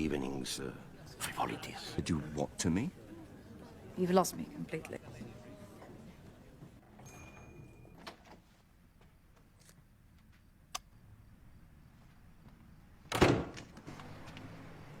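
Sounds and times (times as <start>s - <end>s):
door banging: 13.1s - 13.7s.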